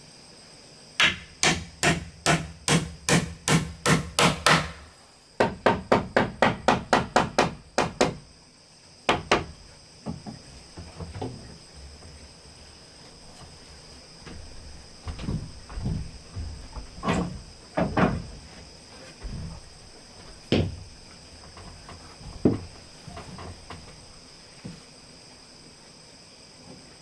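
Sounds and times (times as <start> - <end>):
high insect drone: 0.0 - 27.0
hammer blows on wood: 1.0 - 8.2.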